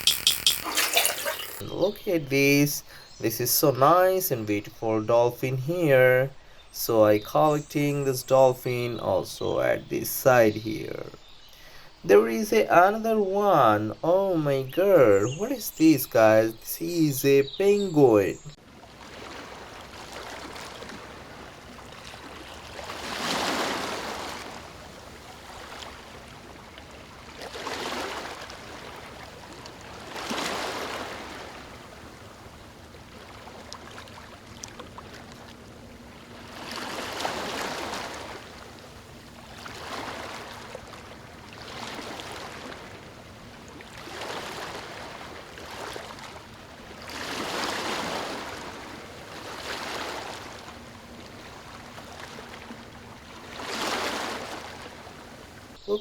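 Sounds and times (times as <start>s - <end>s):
small waves washing in: 18.7s - 55.8s
steady water wash: 27.2s - 56.0s.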